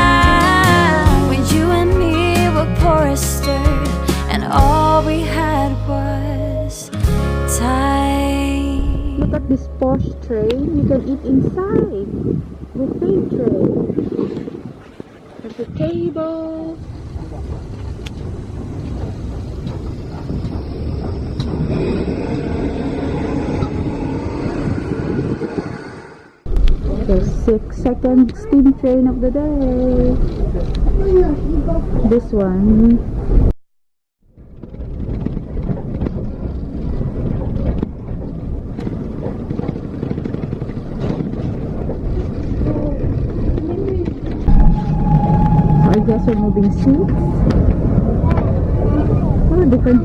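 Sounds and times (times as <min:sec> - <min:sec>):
wind on microphone: 0:07.6 - 0:33.5, 0:34.3 - 0:50.0
train rolling on rails: 0:16.5 - 0:33.3.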